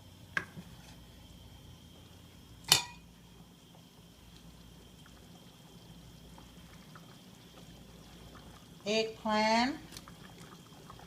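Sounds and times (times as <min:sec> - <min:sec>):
faint hiss from pot: 0:00.0 - 0:11.0
utensil clinking metal pot: 0:02.6 - 0:03.0.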